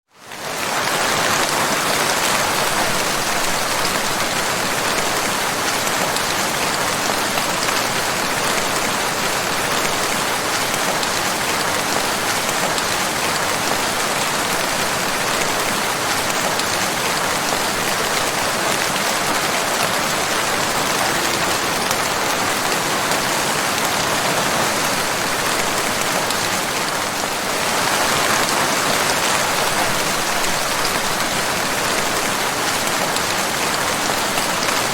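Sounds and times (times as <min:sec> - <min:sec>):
steady rain: 0:00.1 - 0:34.9.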